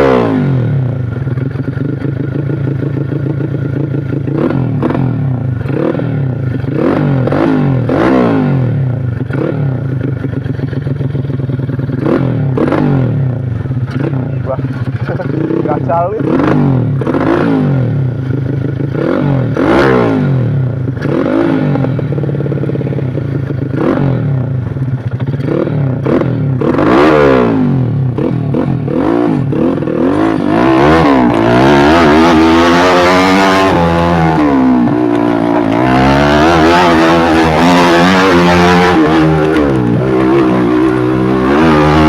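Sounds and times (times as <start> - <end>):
moped engine revving: 0.0 - 42.0.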